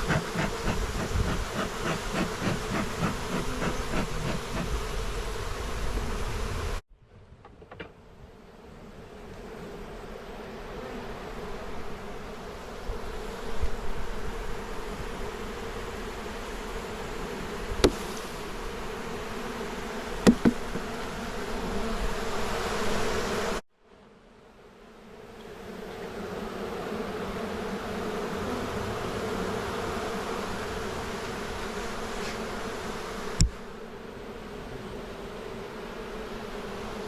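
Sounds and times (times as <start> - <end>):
honeybees buzzing: 0.0 - 6.8, 8.2 - 23.6, 24.5 - 37.0
sharp knocks: 20.2 - 20.9.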